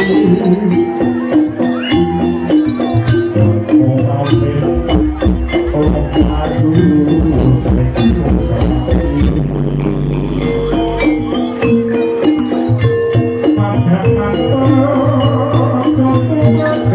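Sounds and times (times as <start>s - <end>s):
ensemble of pitched instruments and percussion: 0.0s - 16.9s.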